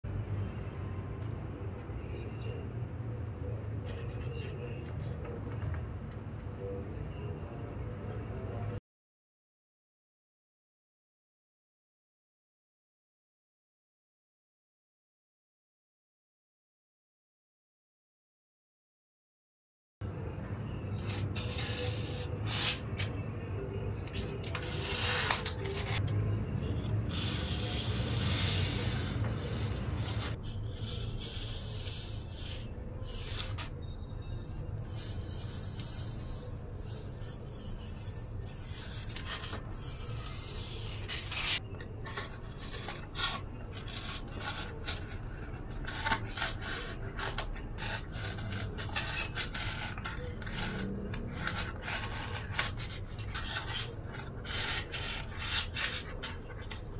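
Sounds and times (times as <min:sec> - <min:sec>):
scratching and rubbing craft work: 0:20.9 - 0:56.9.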